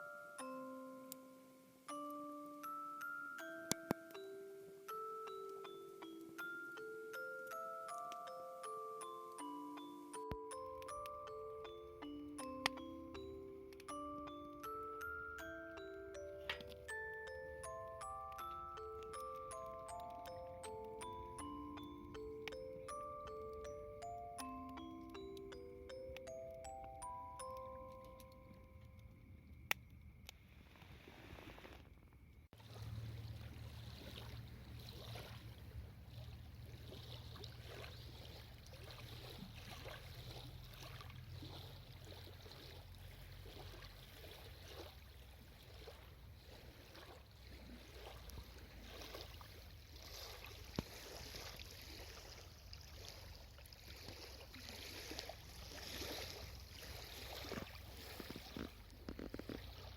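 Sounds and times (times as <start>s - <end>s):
small waves lapping: 32.6s - 59.9s.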